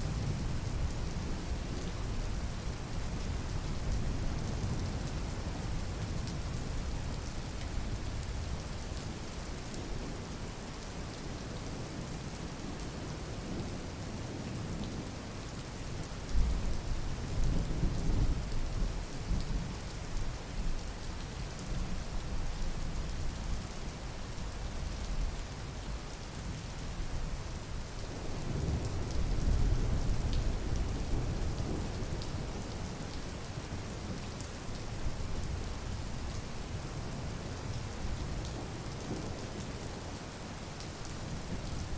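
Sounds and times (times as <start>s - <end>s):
steady rain falling: 0.0s - 41.9s
low rumbles of thunder: 28.2s - 32.7s.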